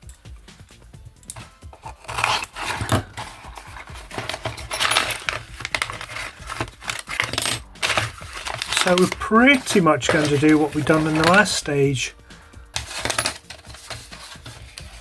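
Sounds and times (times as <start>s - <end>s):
packaging rustling and tearing: 1.4s - 12.0s, 12.8s - 15.0s.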